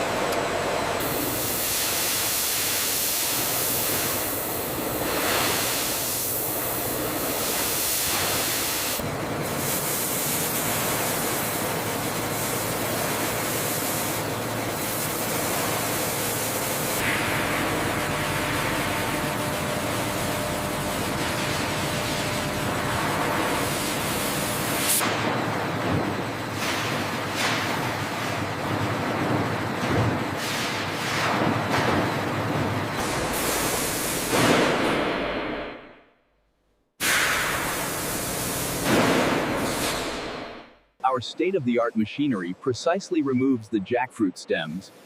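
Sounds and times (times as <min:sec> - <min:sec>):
factory machinery hissing: 0:00.9 - 0:25.3, 0:33.0 - 0:35.8, 0:37.0 - 0:45.0.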